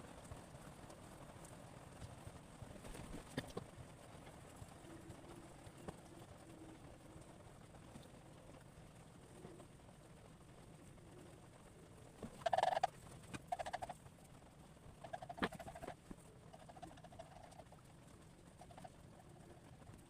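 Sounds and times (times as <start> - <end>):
bird calling in pulsed bursts: 12.4 - 14.0, 15.0 - 17.7, 18.6 - 19.0.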